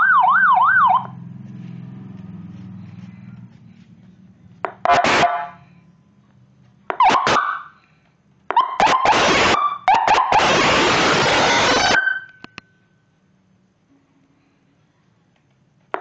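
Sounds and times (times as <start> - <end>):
electronic vehicle siren: 0.0 - 1.2, 4.8 - 5.7, 6.9 - 7.8, 8.5 - 12.6
harsh buzzing horn: 4.8 - 5.8, 8.8 - 12.4.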